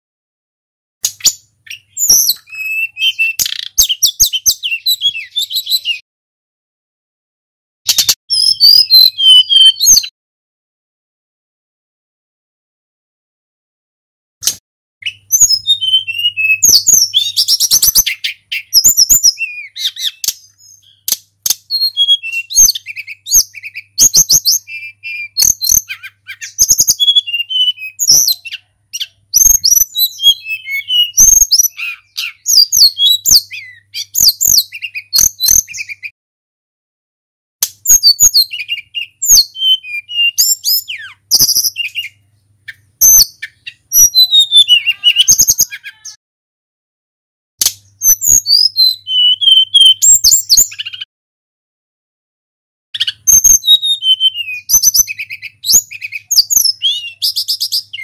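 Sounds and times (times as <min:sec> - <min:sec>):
bird singing whistled notes: 0:01.0 - 0:06.0, 0:07.9 - 0:10.1, 0:15.0 - 0:36.2, 0:37.7 - 0:46.1, 0:47.8 - 0:51.1, 0:53.0 - 0:58.0.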